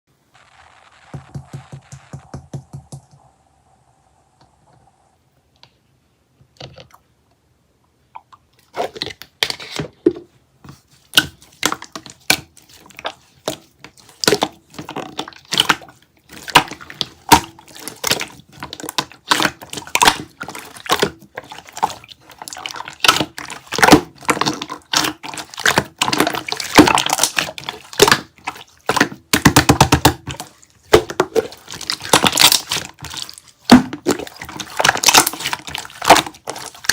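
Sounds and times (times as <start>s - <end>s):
slime squishing wet clicks: 13.5s - 36.9s.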